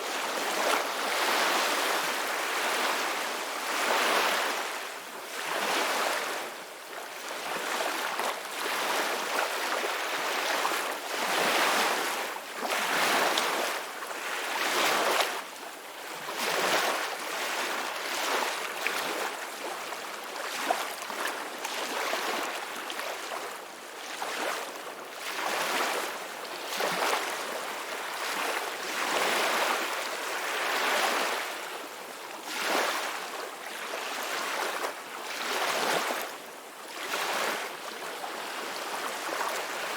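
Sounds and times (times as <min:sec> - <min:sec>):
ocean waves breaking on shore: 0:00.0 - 0:15.4, 0:24.1 - 0:39.9.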